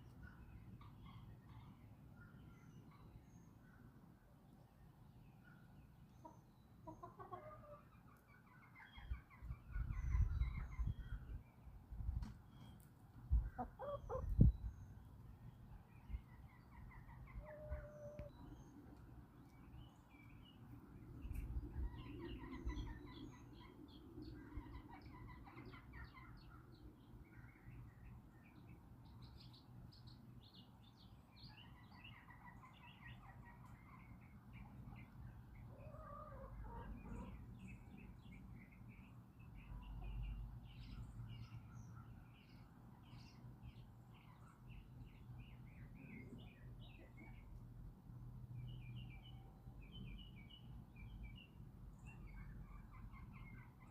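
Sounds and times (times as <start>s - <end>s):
songbirds chirping: 0.0s - 53.9s
chickens calling: 6.2s - 11.2s, 13.4s - 14.6s, 16.1s - 19.1s, 21.3s - 26.7s, 31.6s - 37.9s.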